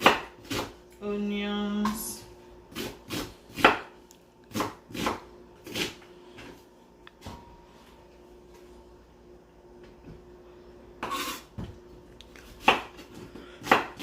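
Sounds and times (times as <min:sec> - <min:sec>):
knife chopping on cutting board: 0:00.0 - 0:00.8, 0:02.7 - 0:06.0, 0:12.5 - 0:14.0.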